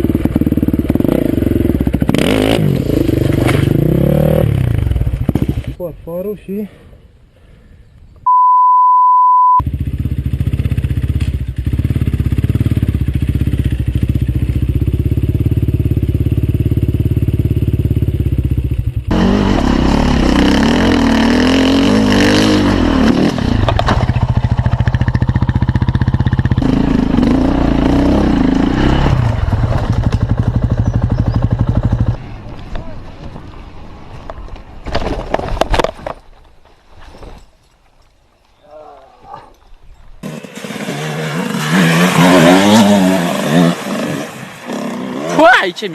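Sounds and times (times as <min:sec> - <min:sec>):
motorcycle engine revving: 0:00.0 - 0:05.8, 0:09.6 - 0:32.3, 0:40.2 - 0:45.7
censor beep: 0:08.3 - 0:09.6.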